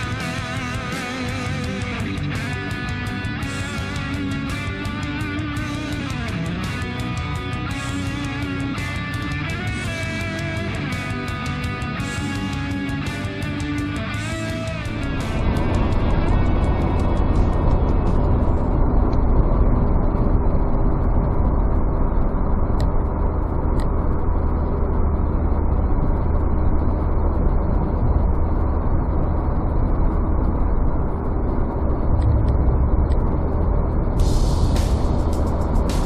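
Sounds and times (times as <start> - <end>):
engine and tyre rumble: 0.0 - 36.0
bright hiss: 34.2 - 36.0.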